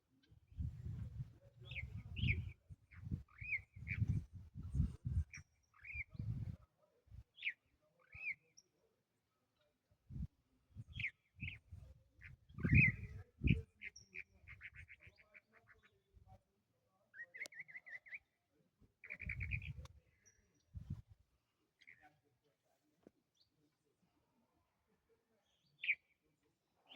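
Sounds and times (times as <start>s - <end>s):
small bird chirping and trilling: 1.6s - 6.5s, 12.4s - 15.9s, 19.0s - 21.0s, 25.7s - 26.1s.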